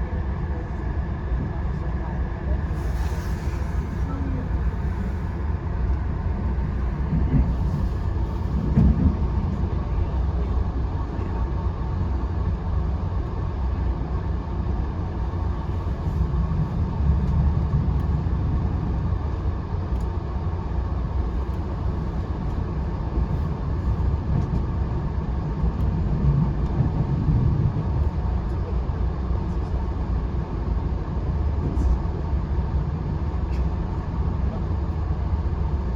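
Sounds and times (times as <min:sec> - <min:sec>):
train wheels rumbling on rails: 0:00.0 - 0:35.9.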